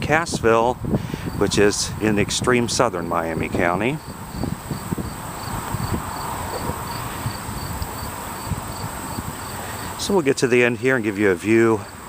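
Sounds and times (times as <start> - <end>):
insects chirping: 1.1 - 1.6, 3.3 - 12.0.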